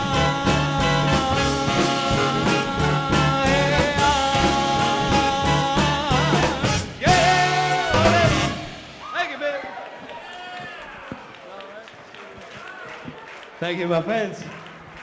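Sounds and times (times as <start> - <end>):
live swing band playing: 0.0 - 9.1.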